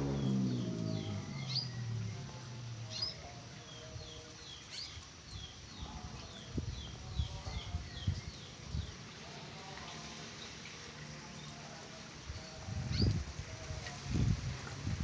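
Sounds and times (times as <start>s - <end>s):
low drone: 0.0s - 4.6s
caged birds chirping: 0.0s - 11.6s, 12.2s - 13.3s.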